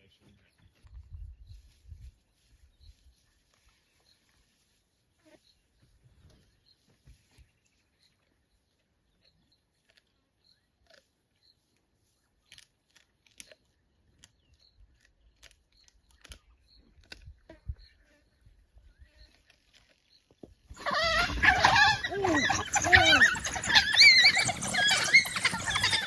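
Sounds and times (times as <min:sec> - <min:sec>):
faint high chirp: 0:22.0 - 0:26.0.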